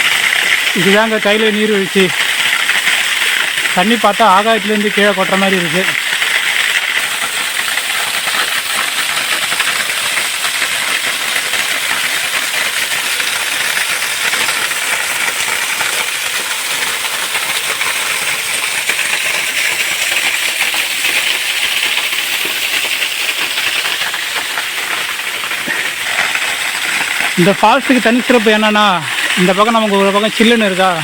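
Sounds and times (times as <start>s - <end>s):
waterfall rushing into pool: 0.0s - 31.0s.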